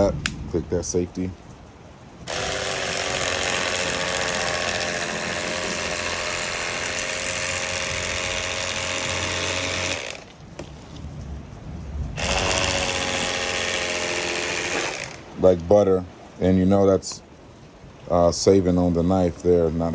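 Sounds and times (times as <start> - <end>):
electric knife buzzing: 2.3 - 10.4, 12.2 - 15.3.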